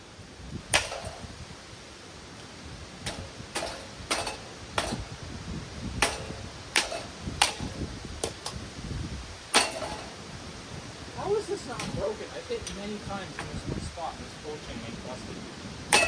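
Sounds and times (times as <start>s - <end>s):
sharp blows on ceiling fan: 0.2s - 12.2s.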